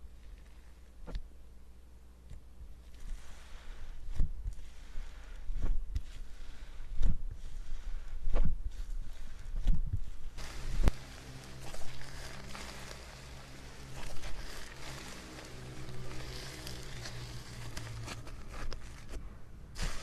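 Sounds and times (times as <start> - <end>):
slime squelching by hand: 6.0 - 20.0.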